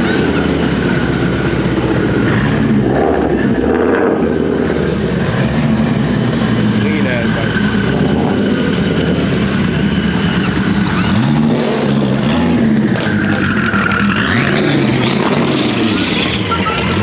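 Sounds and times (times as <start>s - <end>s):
car engine revving: 0.0s - 17.0s
exhaust noise: 0.0s - 17.0s.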